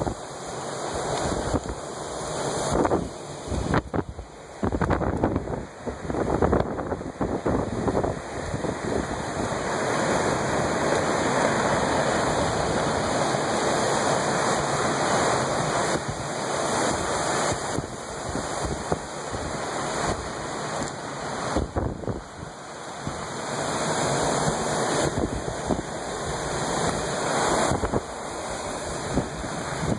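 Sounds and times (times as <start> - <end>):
storm surge water rushing: 0.0 - 29.9
wind buffeting microphone: 2.6 - 11.3, 16.8 - 23.2, 24.3 - 29.9
storm wind rushing: 2.6 - 20.5, 21.4 - 29.9.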